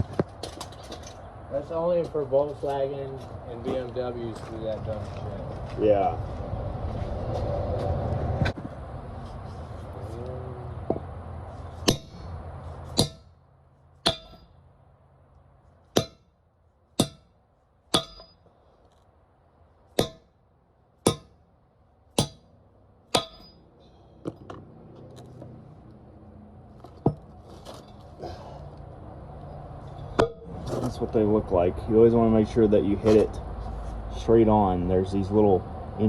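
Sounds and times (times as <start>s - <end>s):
hammer clanging on metal: 11.8s - 12.3s, 12.9s - 13.3s, 14.0s - 14.5s, 16.0s - 16.3s, 17.0s - 17.3s, 17.9s - 18.5s, 20.0s - 20.3s, 21.1s - 21.4s, 22.2s - 22.5s, 23.1s - 23.7s.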